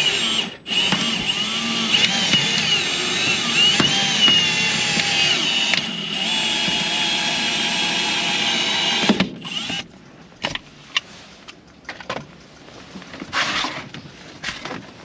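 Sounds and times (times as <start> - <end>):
power tool motor whining: 0.0 - 9.9.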